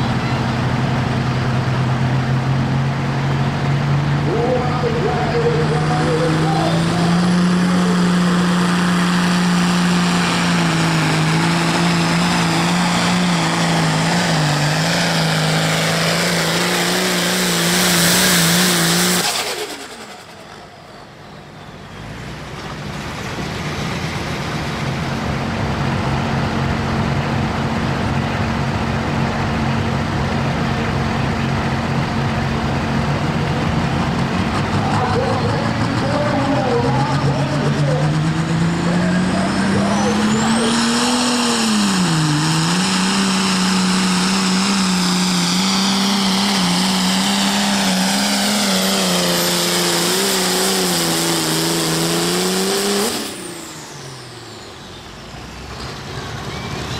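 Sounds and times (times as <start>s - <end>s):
diesel engine running hard: 0.0s - 56.9s.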